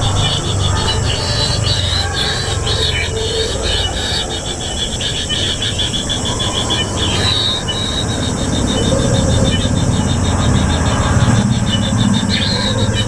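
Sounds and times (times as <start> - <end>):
kingfisher chicks begging trill: 0.0 - 13.0
steady low rumble: 5.6 - 13.0.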